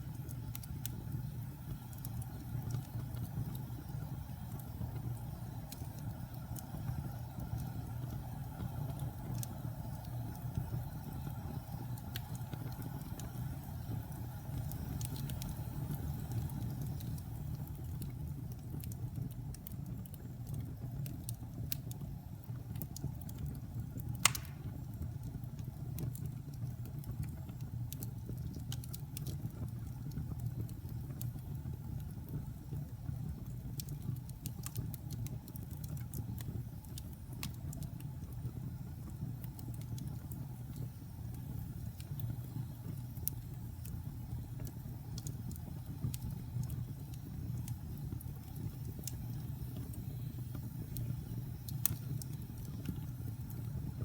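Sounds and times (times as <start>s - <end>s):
fire burning with crackles: 0.0s - 54.0s
loud sharp pop from fire: 24.2s - 24.9s.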